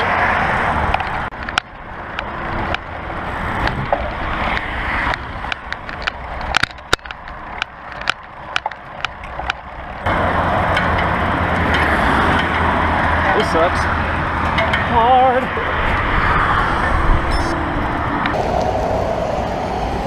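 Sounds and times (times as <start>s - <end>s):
bike clicks and rattles: 0.0s - 19.4s
loud steady rush: 9.7s - 20.0s.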